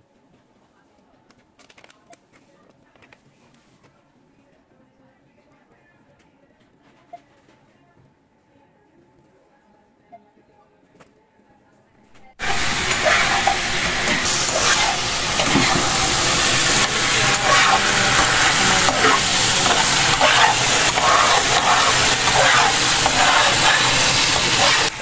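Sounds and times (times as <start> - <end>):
spatula scraping pan: 12.3 - 25.0
chicken sizzling in hot oil: 12.4 - 25.0.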